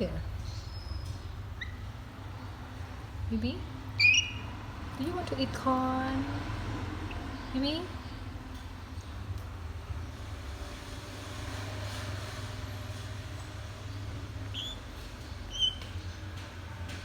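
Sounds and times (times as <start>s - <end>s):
parrot squeaks: 0.5s - 1.9s, 4.0s - 4.6s, 14.4s - 16.1s.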